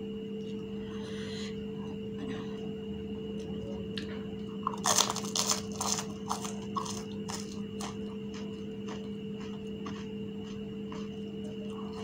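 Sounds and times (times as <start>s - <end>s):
electrical hum: 0.0s - 12.0s
crunching and chewing: 3.3s - 12.0s.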